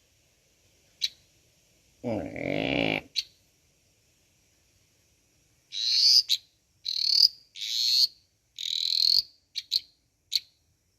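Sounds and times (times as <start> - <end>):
tree frog buzzing croaks: 2.0 - 3.2
frog short chirps: 5.7 - 10.5.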